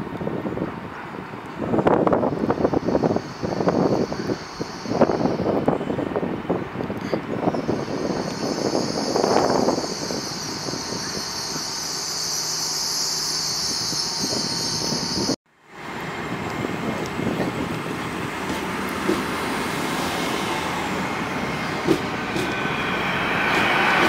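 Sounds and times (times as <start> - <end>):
train passing close by: 0.0 - 24.0
sharp clicks of train cars: 18.4 - 19.6, 21.8 - 22.7.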